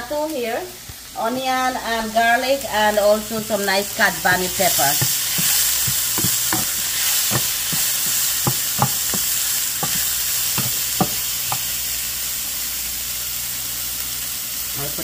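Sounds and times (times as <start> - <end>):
vegetables sizzling in a frying pan: 0.0 - 15.0
wooden spoon scraping a pan: 3.4 - 11.7.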